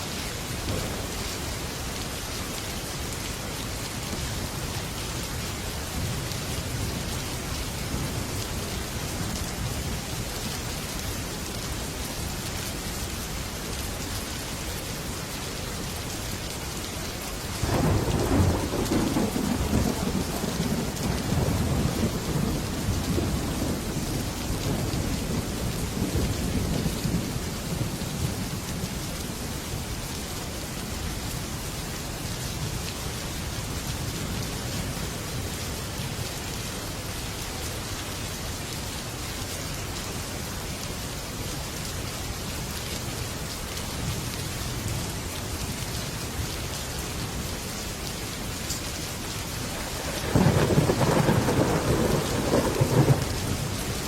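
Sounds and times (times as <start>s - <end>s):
heavy rain on a metal roof: 0.0s - 54.0s
thunder: 17.6s - 27.3s, 49.8s - 53.8s.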